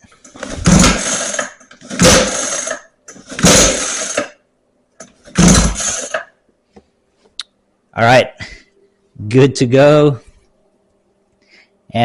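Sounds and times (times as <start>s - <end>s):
recoil starter cord pulled: 0.3s - 4.4s, 5.3s - 6.3s
starter cord rewinding: 0.3s - 4.4s, 5.3s - 6.3s
engine turning over: 0.4s - 4.4s, 5.3s - 6.3s.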